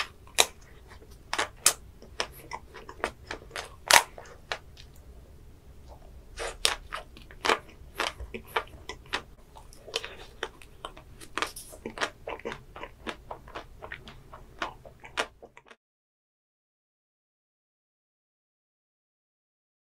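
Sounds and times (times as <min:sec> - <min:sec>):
chocolate shell crunching: 0:00.0 - 0:05.0, 0:05.9 - 0:15.7.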